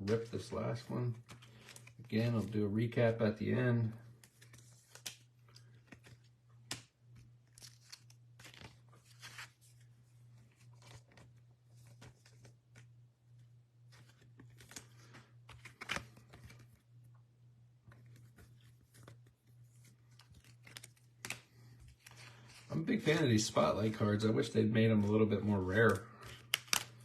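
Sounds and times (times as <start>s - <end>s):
low electrical hum: 0.0s - 27.0s
cards sliding into plastic sleeves: 4.1s - 9.8s, 13.9s - 16.8s, 25.0s - 27.0s.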